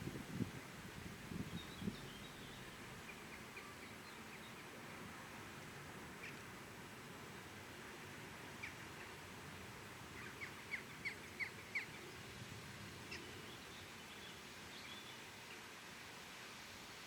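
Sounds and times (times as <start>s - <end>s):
faint background noise: 0.0s - 17.0s
bird chirping: 1.4s - 4.7s.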